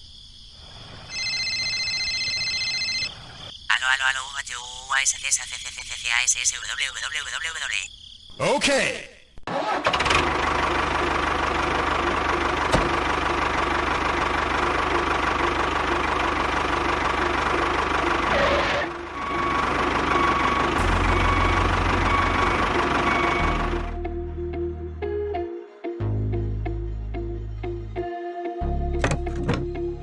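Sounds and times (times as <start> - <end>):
small tractor motor running: 9.6 - 23.8.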